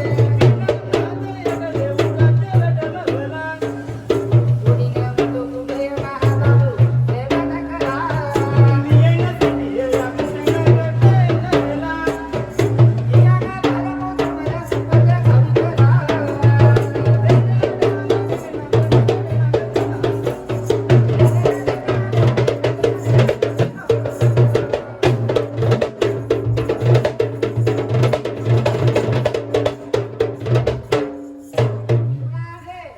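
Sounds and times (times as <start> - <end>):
fast hand-drum strokes: 0.0 - 32.7.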